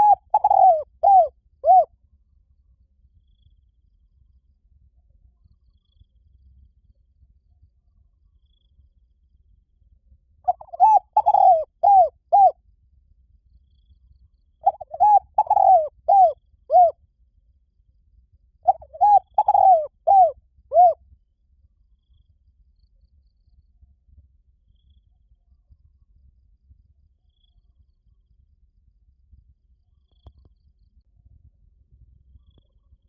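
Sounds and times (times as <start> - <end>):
dove cooing: 0.0 - 1.9, 10.5 - 12.6, 14.6 - 17.0, 18.7 - 21.0.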